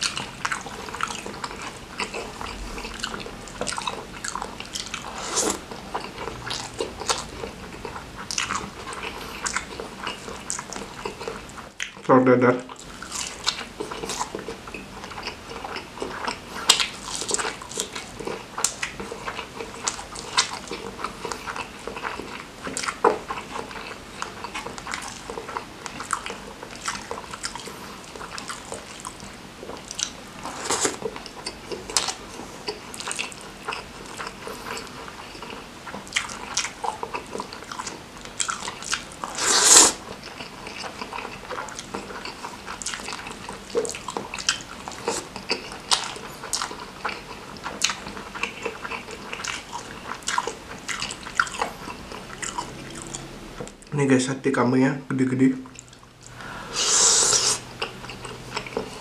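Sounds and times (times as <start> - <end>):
person biting and chewing food: 0.0 - 12.0, 12.8 - 53.7, 55.8 - 59.0.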